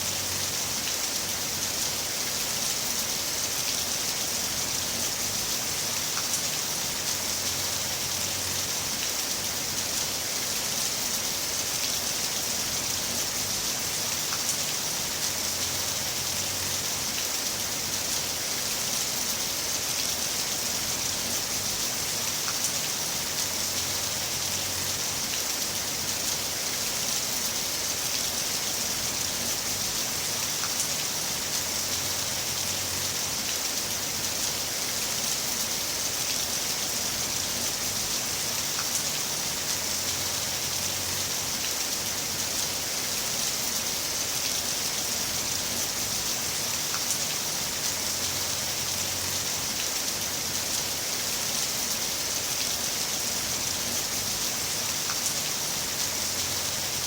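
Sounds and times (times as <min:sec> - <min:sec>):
heavy rain falling: 0:00.0 - 0:57.0
raindrop ticks: 0:38.7 - 0:39.2.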